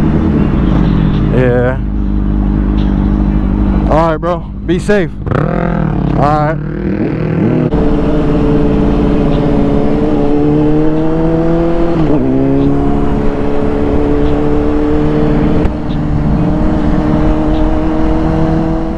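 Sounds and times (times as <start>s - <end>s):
motorcycle engine shifting gears: 5.2s - 18.9s.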